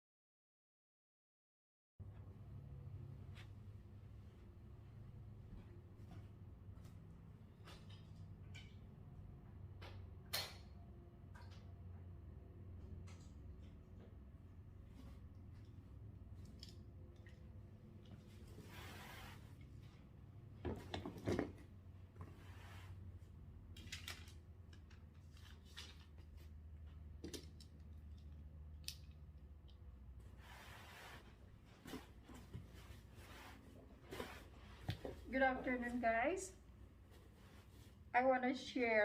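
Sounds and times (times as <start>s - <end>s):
low steady hum: 2.0s - 39.0s
rustling and clicking of handling: 23.7s - 30.0s.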